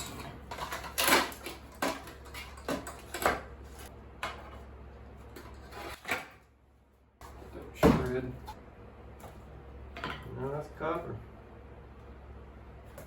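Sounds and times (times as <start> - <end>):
metal and plastic parts clattering: 0.0 - 4.6.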